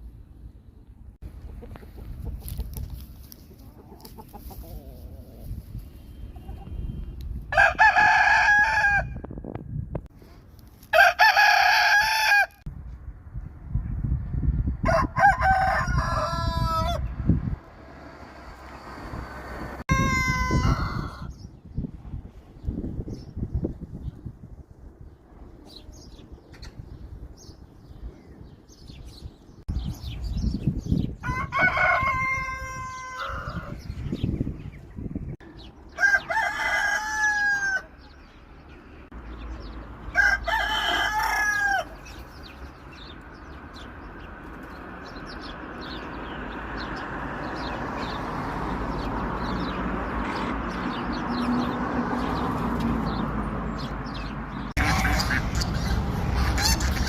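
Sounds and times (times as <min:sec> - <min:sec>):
rooster crowing: 0:07.5 - 0:09.2, 0:10.9 - 0:12.6, 0:14.8 - 0:17.1, 0:19.8 - 0:21.3, 0:31.2 - 0:33.8, 0:35.9 - 0:38.1, 0:40.1 - 0:42.1.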